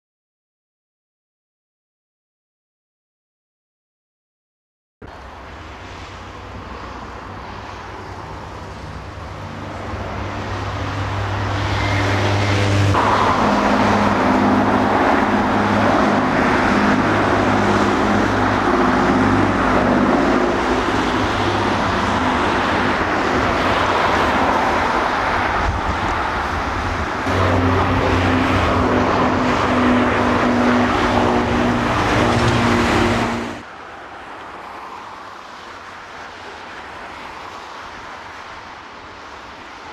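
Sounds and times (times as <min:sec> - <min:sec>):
propeller aircraft droning: 0:05.0 - 0:34.8.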